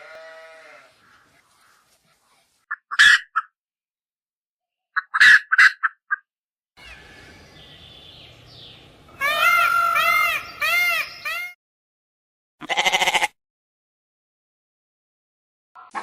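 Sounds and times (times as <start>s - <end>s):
rising and falling animal calls: 9.2s - 11.6s.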